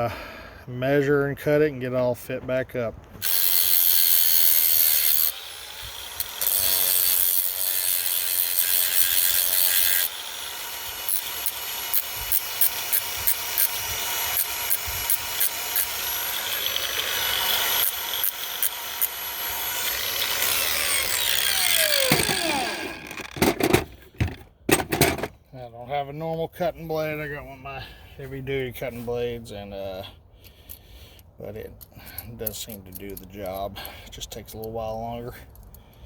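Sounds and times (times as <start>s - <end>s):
angle grinder cutting steel: 3.2s - 25.3s.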